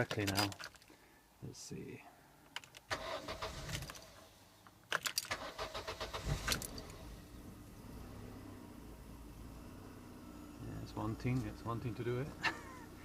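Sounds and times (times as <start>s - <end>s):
car engine starting and idling: 2.9s - 13.0s.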